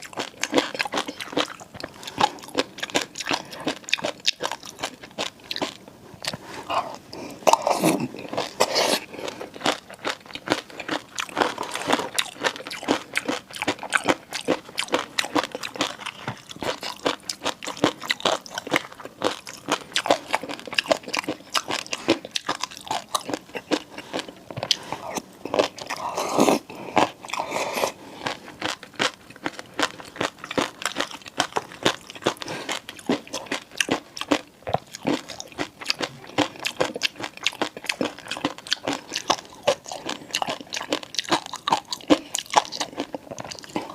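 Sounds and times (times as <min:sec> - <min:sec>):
chewing and biting: 0:00.0 - 0:43.9
loud mouth sound: 0:06.7 - 0:09.1.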